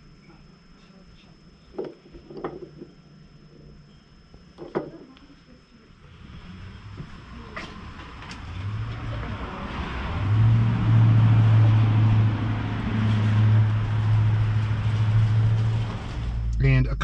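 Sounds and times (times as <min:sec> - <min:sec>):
car engine humming: 0:06.1 - 0:17.0.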